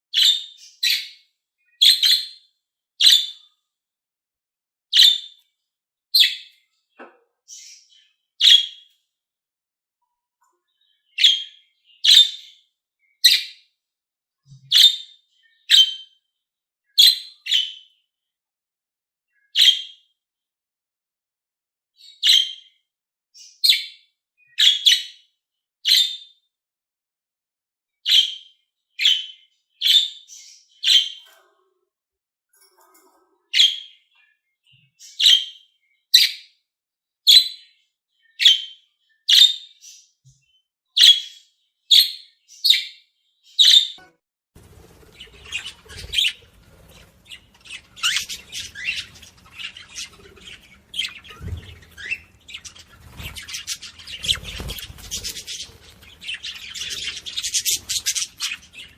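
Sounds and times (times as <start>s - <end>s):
budgerigars chirping and chattering: 14.7s - 16.0s, 19.6s - 19.8s, 24.5s - 25.1s, 28.1s - 28.4s, 29.0s - 31.4s, 35.0s - 36.4s, 38.4s - 40.0s, 44.6s - 58.9s.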